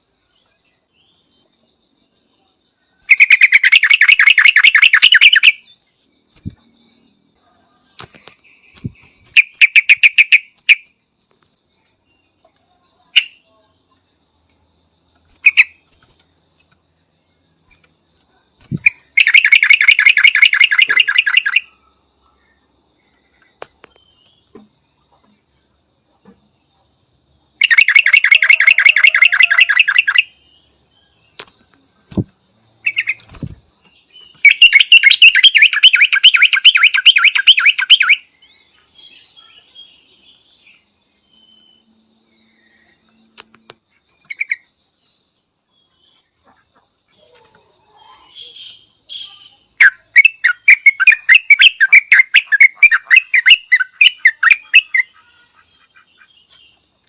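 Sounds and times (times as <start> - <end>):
bulbul calling: 3.0 - 5.7, 8.0 - 10.9, 15.3 - 15.8, 18.6 - 21.7, 27.6 - 30.4, 32.1 - 33.5, 34.3 - 38.3, 48.2 - 56.3.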